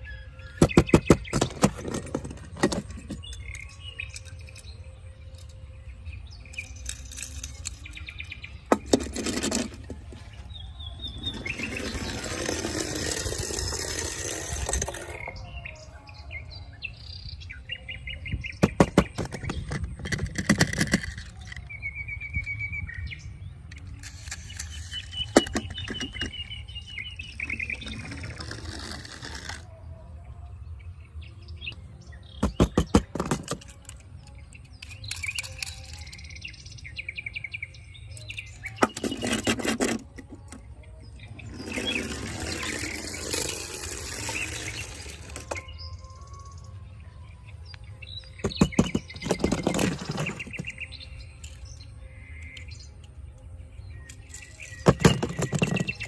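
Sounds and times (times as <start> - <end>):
birds chirping in trills: 0.0 - 56.0
clicking and clattering: 18.6 - 21.7, 32.4 - 36.2.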